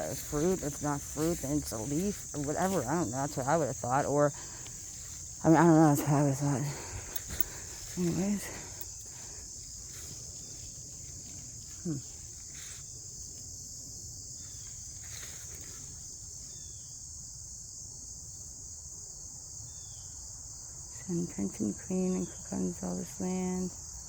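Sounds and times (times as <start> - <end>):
insects shrilling: 0.0 - 17.4.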